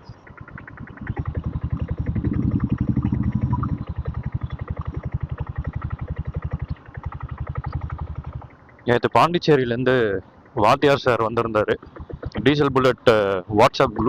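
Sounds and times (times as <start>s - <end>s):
motorcycle diesel engine thumping: 0.0s - 9.8s, 10.4s - 14.0s.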